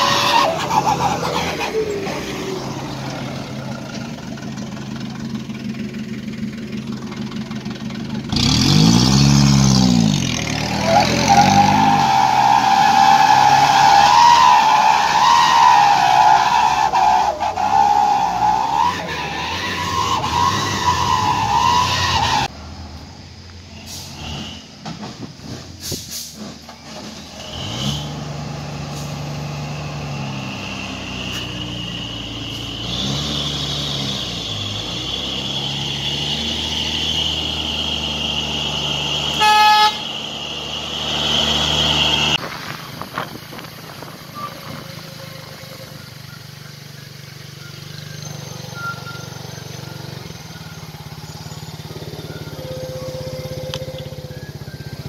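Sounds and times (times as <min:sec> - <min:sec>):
truck diesel engine labouring: 0:00.0 - 0:55.0
truck horn blast: 0:39.2 - 0:42.4, 0:52.2 - 0:55.0
wavering horn-like tone: 0:51.9 - 0:55.0.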